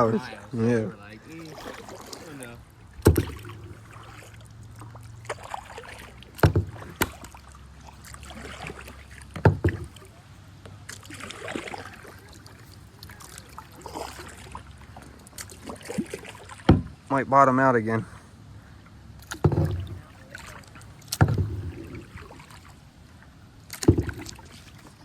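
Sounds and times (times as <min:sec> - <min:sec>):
paddle strokes splashing in water: 0:00.0 - 0:17.1, 0:18.1 - 0:25.0
sharp knocks: 0:03.0 - 0:03.6.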